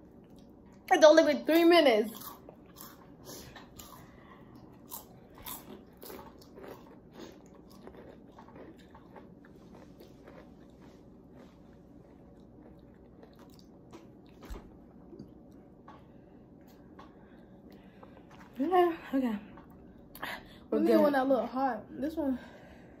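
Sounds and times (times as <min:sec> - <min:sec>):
chewing and crunching corn chips: 0:02.1 - 0:18.7.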